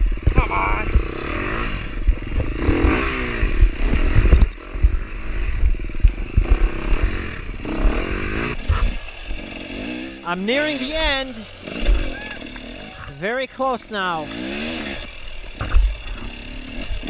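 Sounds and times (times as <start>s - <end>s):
knocks and clatter from bike: 0.0s - 9.6s, 15.4s - 17.0s
dirt bike engine revving: 0.0s - 17.0s.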